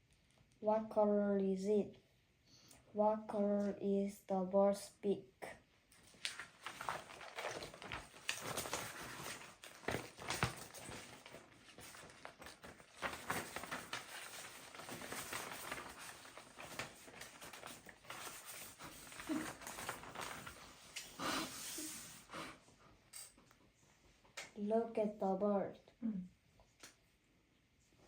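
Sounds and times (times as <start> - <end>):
rustling and scratching: 6.0 - 22.3.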